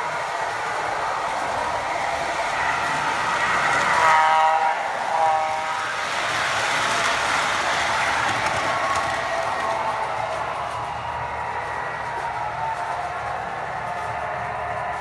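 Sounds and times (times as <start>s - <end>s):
locomotive running sounds: 0.0s - 15.0s
train horn toots: 1.9s - 6.6s.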